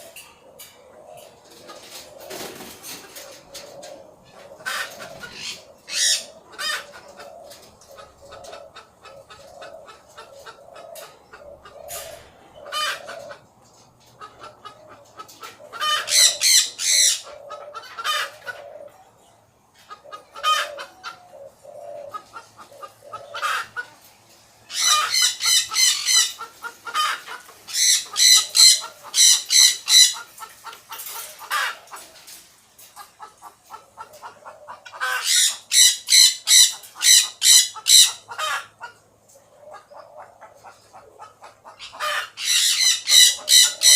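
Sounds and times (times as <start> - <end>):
parrots squawking: 4.6 - 6.9, 15.8 - 17.3, 24.7 - 30.3, 35.0 - 38.7, 41.8 - 43.9.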